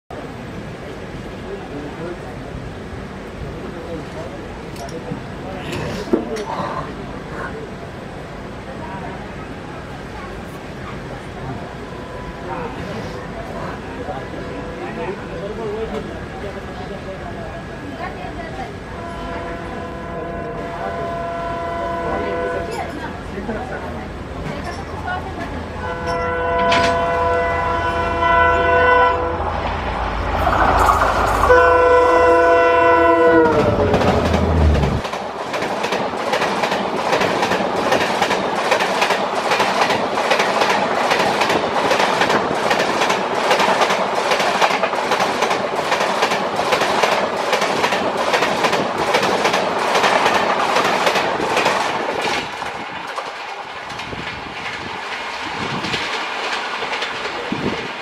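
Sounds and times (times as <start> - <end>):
clickety-clack of train wheels: 4.0 - 6.6, 22.5 - 23.8, 24.4 - 27.4, 33.3 - 58.0
locomotive horn blasts: 19.0 - 22.8, 25.8 - 29.5, 31.4 - 33.7
deep diesel engine rumble: 27.4 - 35.0.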